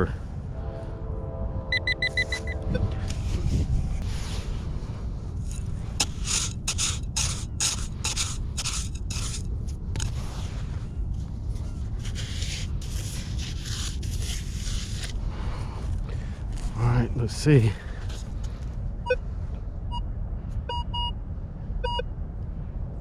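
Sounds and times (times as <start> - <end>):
steady low rumble: 0.0 - 23.0
gritty scraping in sand: 2.2 - 18.7.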